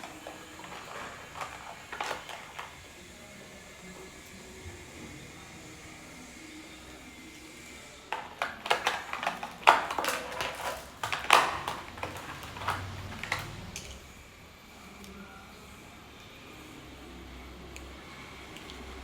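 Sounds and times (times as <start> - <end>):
plastic cases clicking and clattering: 0.0 - 2.9, 8.1 - 14.0.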